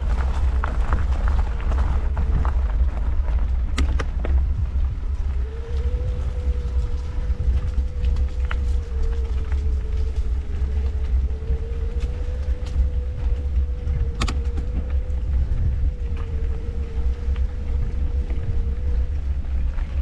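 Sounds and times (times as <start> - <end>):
electric motor whine: 0.0 - 20.0
low rumble of riding: 0.0 - 20.0
clicks: 14.1 - 14.9.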